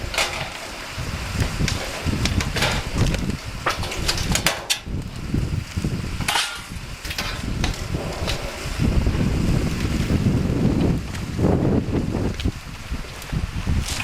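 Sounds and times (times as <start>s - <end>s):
wind rumbling on microphone: 0.0s - 14.0s
knocks and taps from roofing work: 1.4s - 4.9s.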